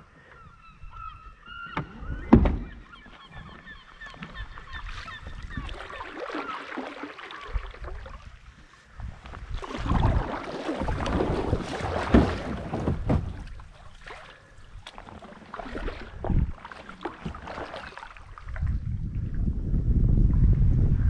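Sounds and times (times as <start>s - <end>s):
bird calling: 0.0s - 7.5s
kayak paddling in water: 0.0s - 21.0s.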